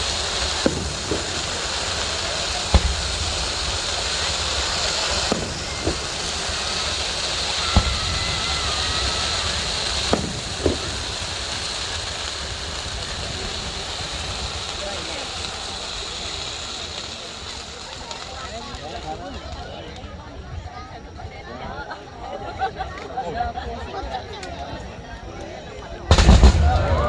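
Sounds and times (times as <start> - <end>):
fireworks bangs: 0.0 - 20.1, 26.0 - 27.0
background hiss: 0.0 - 22.5
crowd voices: 0.0 - 27.0.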